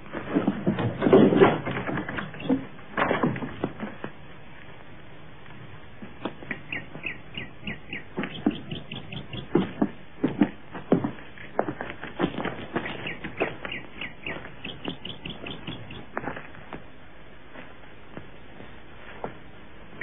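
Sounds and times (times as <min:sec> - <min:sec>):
clatter of knocks and scuffs: 0:00.0 - 0:04.2, 0:09.4 - 0:15.0
bird chirping high and short: 0:06.5 - 0:09.6, 0:12.8 - 0:16.1.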